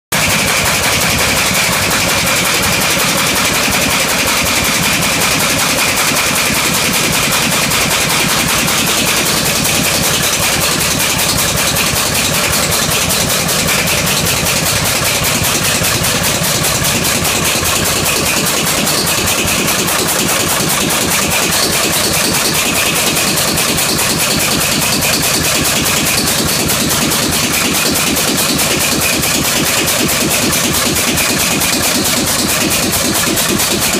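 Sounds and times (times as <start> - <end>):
diesel engine clattering: 0.1 - 33.9.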